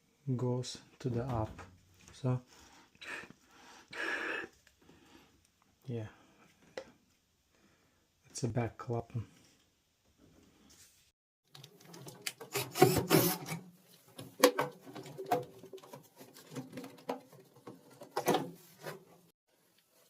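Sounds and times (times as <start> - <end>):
hands clicking and knocking on pump: 14.1 - 19.0.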